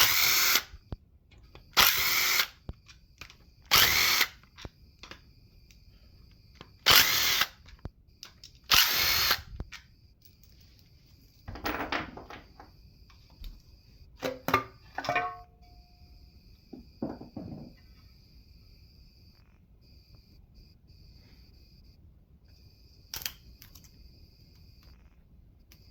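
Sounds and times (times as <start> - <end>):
power tool bursts: 0.0 - 0.7, 1.8 - 2.6, 3.7 - 4.4, 6.8 - 7.6, 8.7 - 9.5
metal knocks and clinks: 11.4 - 12.7, 14.2 - 15.6.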